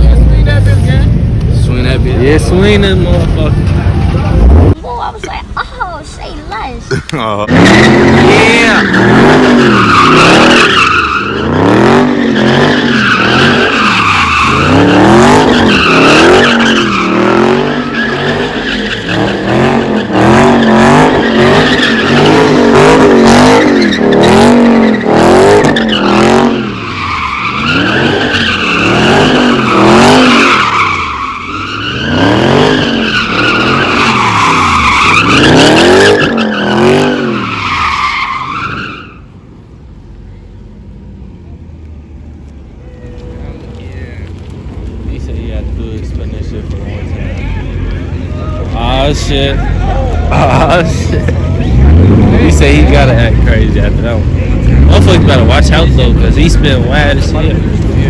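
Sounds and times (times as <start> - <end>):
car engine revving: 0.0 - 4.8, 7.4 - 39.0, 40.6 - 58.0
tyres squealing: 7.5 - 39.3.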